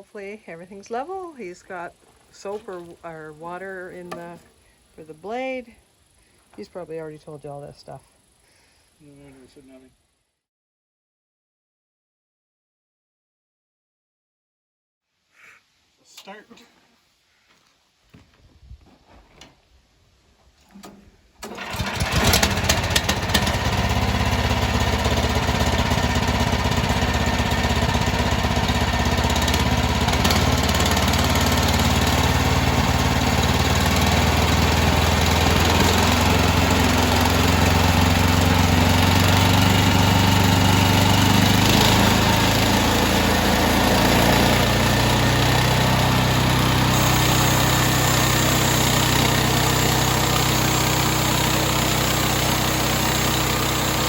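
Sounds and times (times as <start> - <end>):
sawmill engine running: 21.4 - 54.0.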